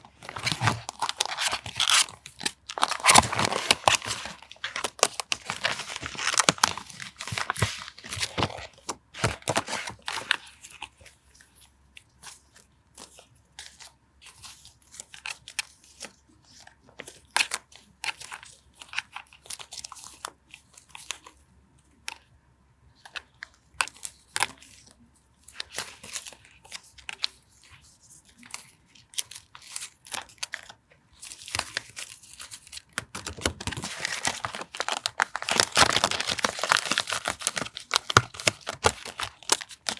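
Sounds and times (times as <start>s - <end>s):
paper crinkling and tearing: 0.0s - 11.2s, 23.8s - 39.9s.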